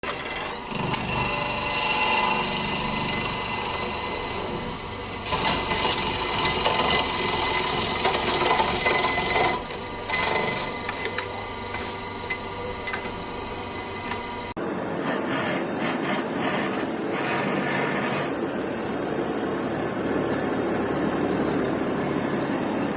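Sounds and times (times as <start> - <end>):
machinery high whine: 0.0 - 22.9.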